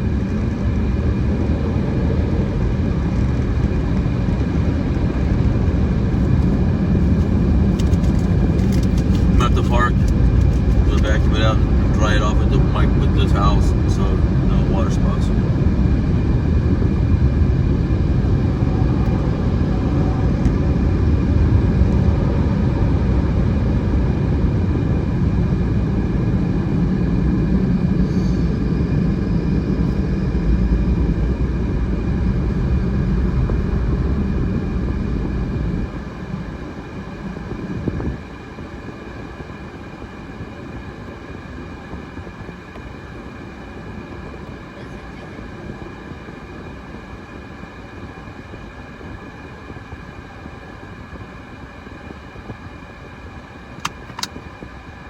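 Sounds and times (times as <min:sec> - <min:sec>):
car wash machinery rumbling: 0:00.0 - 0:23.4.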